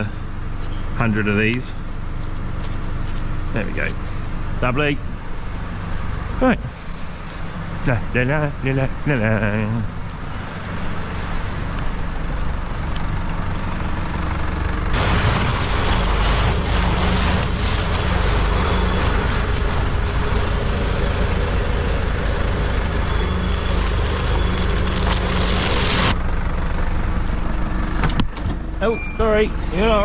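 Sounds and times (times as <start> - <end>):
farm vehicle engine running: 0.0 - 30.0
loud rushing noise: 14.9 - 23.2.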